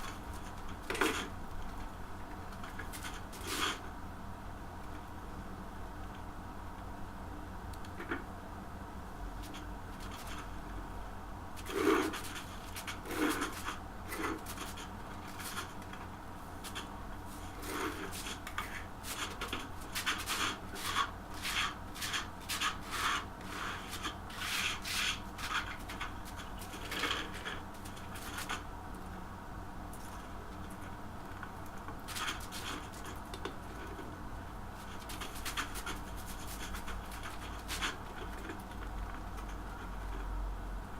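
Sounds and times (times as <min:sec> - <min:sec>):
faint steady hum: 0:00.0 - 0:40.9
scraping strokes: 0:16.6 - 0:28.6.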